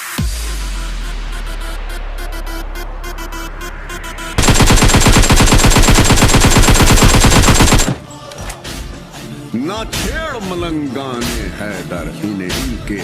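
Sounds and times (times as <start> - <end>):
rapid rattle of sharp bangs: 4.4 - 8.0.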